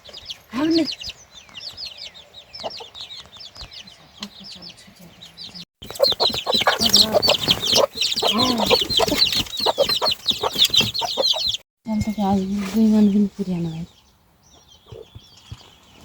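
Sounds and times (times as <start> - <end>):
chicks peeping: 0.0 - 16.0
hen clucking: 2.6 - 3.1, 3.8 - 11.6.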